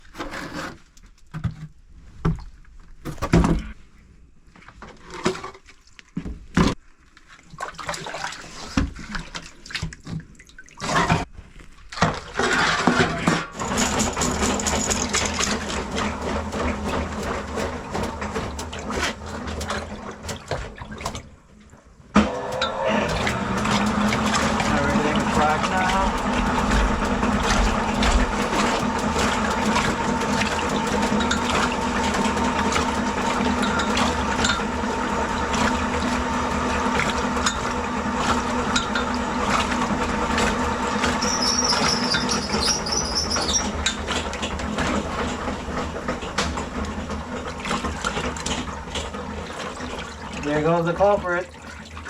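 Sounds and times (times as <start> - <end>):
knocks and metal clatter: 12.0 - 21.2, 22.6 - 35.8, 37.0 - 49.2
water washing: 13.6 - 52.0
motor running: 22.2 - 43.9.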